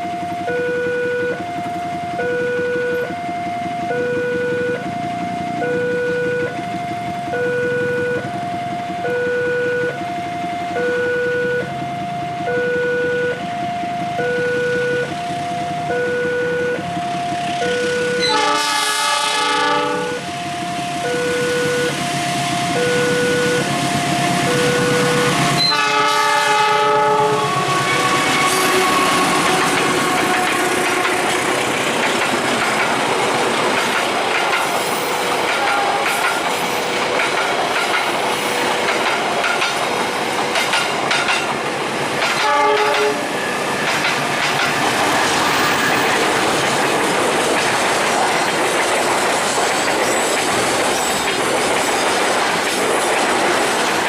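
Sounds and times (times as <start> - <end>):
crossing warning signal tones: 0.0 - 51.5
train wheels clattering on rails: 0.0 - 54.0
locomotive horn blast: 10.7 - 11.7, 14.2 - 15.2, 15.9 - 16.9, 17.5 - 20.3, 21.0 - 31.9, 35.0 - 36.9, 42.2 - 43.9.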